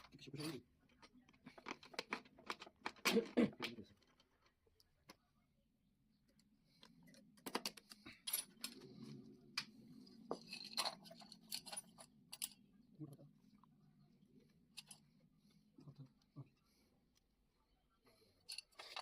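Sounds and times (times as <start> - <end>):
metal parts and tools clinking: 7.3 - 9.2, 10.2 - 12.7, 14.7 - 15.1, 18.4 - 19.0.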